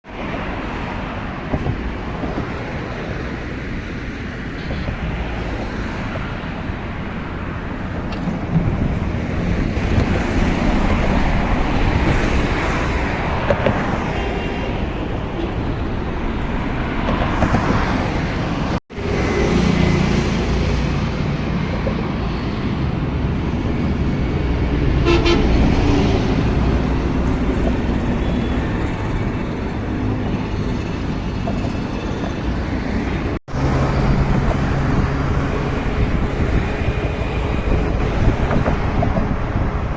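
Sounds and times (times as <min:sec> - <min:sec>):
passing highway traffic: 0:00.0 - 0:39.9
car horns honking: 0:25.0 - 0:26.2.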